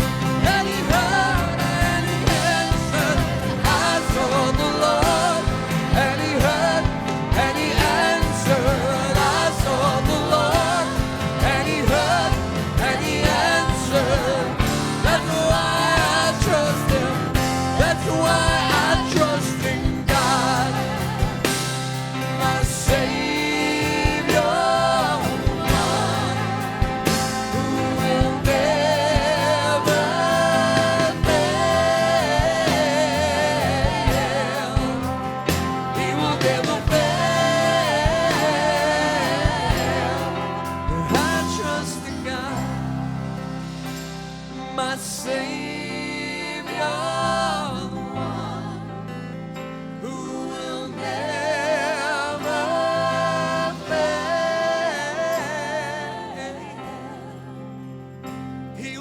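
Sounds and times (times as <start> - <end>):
person singing: 0.0 - 43.2, 44.5 - 49.3, 49.9 - 57.8
steady drum beat: 0.0 - 44.8
worship band playing: 0.0 - 59.0.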